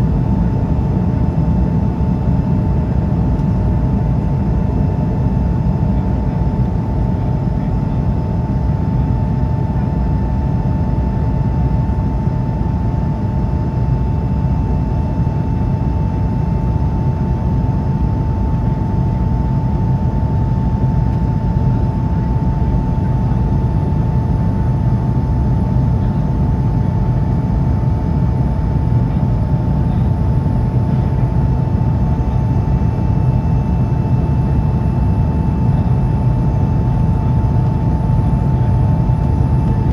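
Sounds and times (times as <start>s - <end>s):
constant whine: 0.0s - 10.7s, 11.4s - 39.9s.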